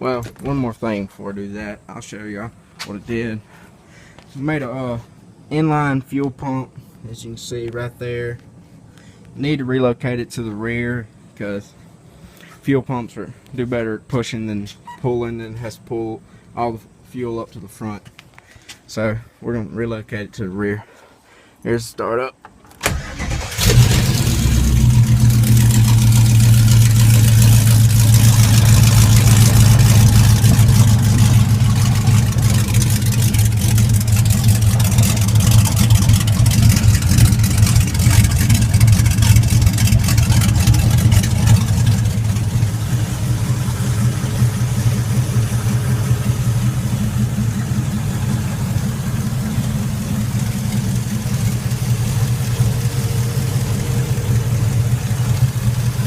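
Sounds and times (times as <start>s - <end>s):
loud engine idling: 23.1s - 56.0s.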